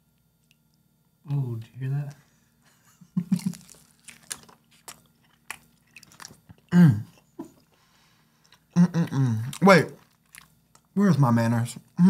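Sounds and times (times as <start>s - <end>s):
crunchy taco bites: 3.2s - 7.8s, 8.4s - 11.0s.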